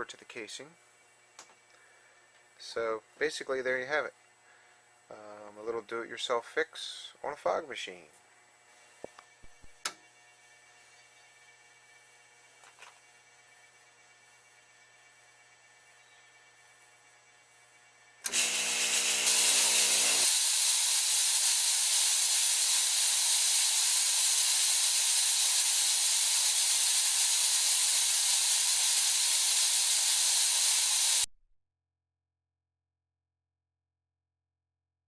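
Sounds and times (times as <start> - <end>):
buzzing hum: 8.2 - 20.4
fog machine hissing: 18.3 - 31.3.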